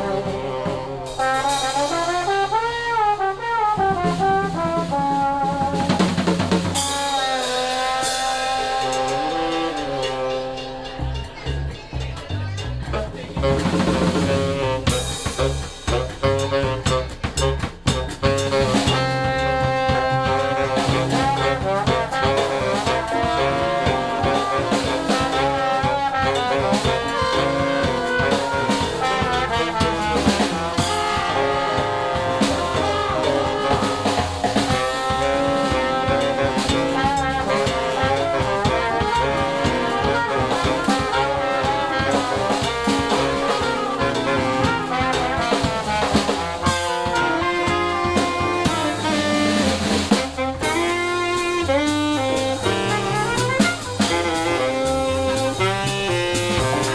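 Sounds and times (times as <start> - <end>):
jazz band playing: 0.0 - 56.9.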